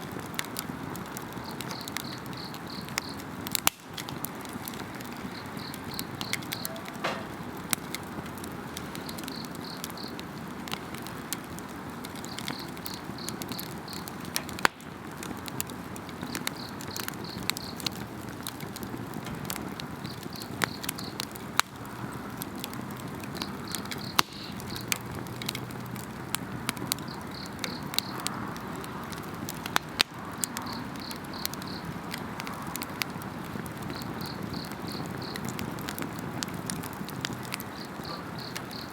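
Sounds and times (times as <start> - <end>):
wood fire crackling and popping: 0.0 - 38.9
insects chirping: 1.4 - 3.2, 5.2 - 7.4, 9.0 - 10.2, 23.4 - 24.9, 33.9 - 35.4, 37.7 - 38.9.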